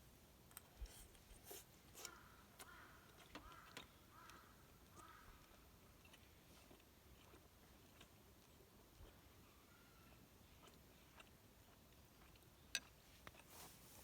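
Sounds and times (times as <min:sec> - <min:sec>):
faint bird calls: 0:02.0 - 0:05.5.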